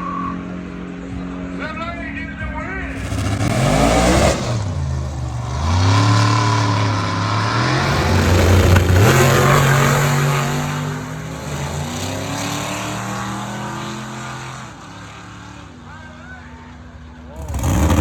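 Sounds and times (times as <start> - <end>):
car engine accelerating at full throttle: 2.8 - 15.9, 16.9 - 18.0.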